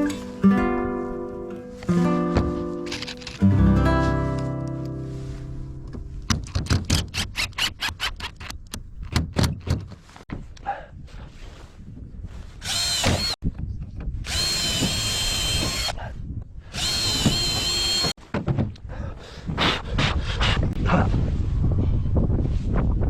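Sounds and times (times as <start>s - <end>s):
power drill whining: 12.6s - 13.4s, 14.2s - 16.0s, 16.7s - 18.2s.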